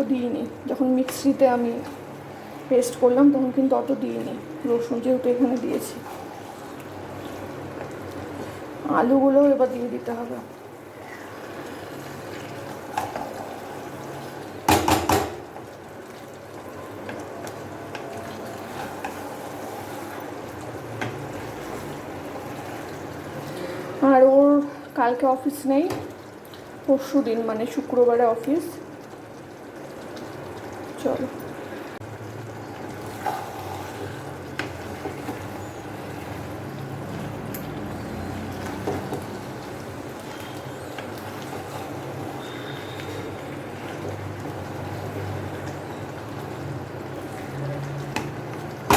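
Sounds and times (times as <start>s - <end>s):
curry bubbling in a pan: 0.0s - 48.9s
clattering knocks against pan: 14.7s - 15.5s.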